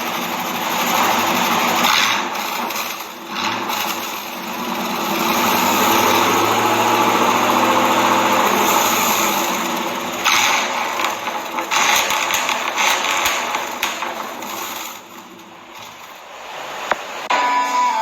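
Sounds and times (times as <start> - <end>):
pickup truck engine revving: 0.0 - 17.3.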